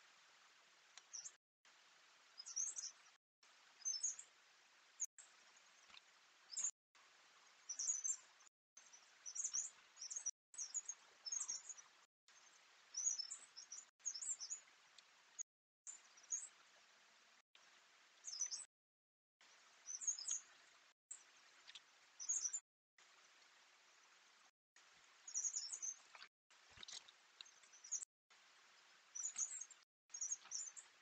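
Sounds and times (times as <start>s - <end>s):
small birds chirping: 0.9s - 1.4s, 2.3s - 6.7s, 7.4s - 16.8s, 18.2s - 18.7s, 19.5s - 22.6s, 25.1s - 31.0s.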